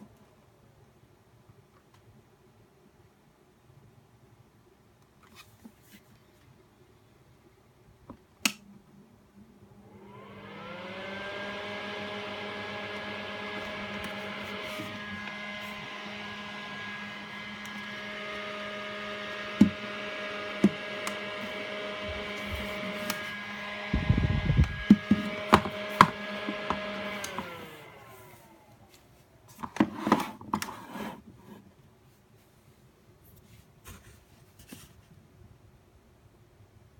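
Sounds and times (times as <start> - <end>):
fan winding down: 9.7 - 29.1
fan motor humming: 9.7 - 29.9.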